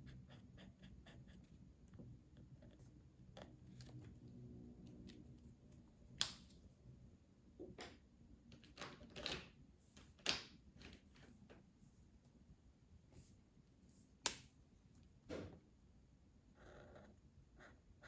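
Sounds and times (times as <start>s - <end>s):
pencil scratching on paper: 0.0s - 1.6s.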